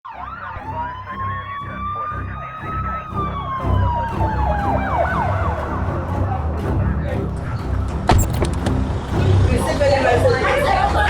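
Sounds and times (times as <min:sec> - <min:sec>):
siren wailing: 0:00.0 - 0:07.3
siren yelping sweeps: 0:00.1 - 0:06.5.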